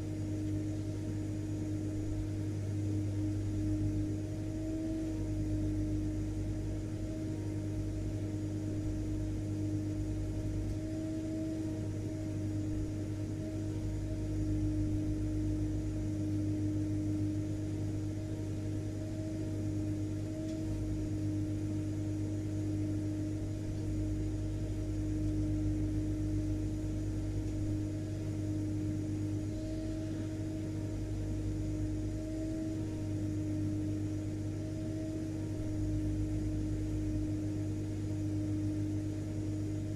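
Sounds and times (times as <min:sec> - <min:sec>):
vacuum cleaner motor running: 0:00.0 - 0:39.9.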